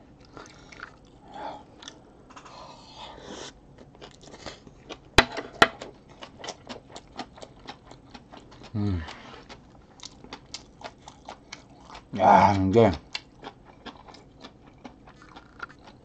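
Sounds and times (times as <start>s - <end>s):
wet chewing: 5.8s - 16.0s.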